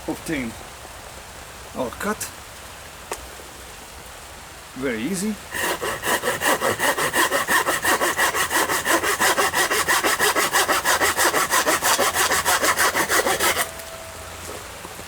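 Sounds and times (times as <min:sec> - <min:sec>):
hand saw sawing a branch: 0:05.5 - 0:13.8.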